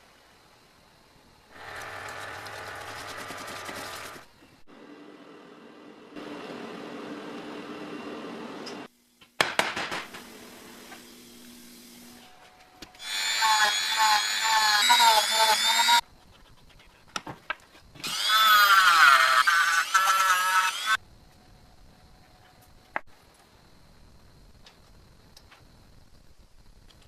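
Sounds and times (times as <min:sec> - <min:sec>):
power tool whining: 0:01.5 - 0:04.2, 0:13.0 - 0:16.0, 0:18.0 - 0:21.0
motor humming: 0:01.6 - 0:04.3.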